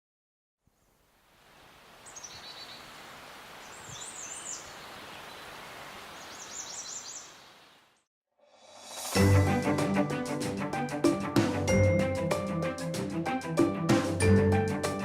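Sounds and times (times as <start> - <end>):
steady outdoor hiss: 0.6 - 8.0
bird singing high warbling phrases: 2.0 - 3.0, 3.6 - 7.8.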